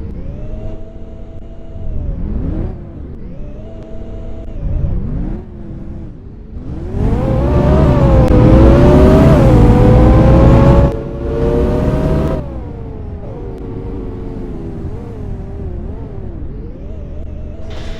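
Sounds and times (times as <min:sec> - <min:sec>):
bus diesel engine accelerating: 0:06.5 - 0:15.4, 0:17.6 - 0:17.9.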